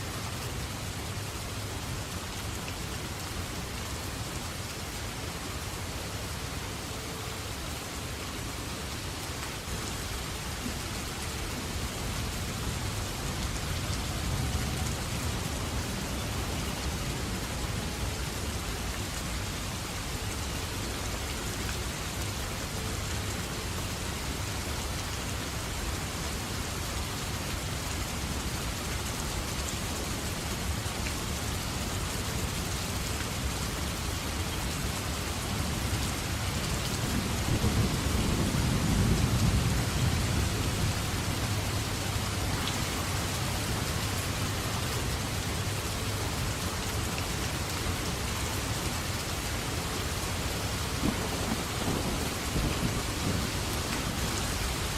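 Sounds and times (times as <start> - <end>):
heavy rain in forest: 0.0 - 54.9
thunder rumbling: 37.2 - 41.0, 50.8 - 54.8.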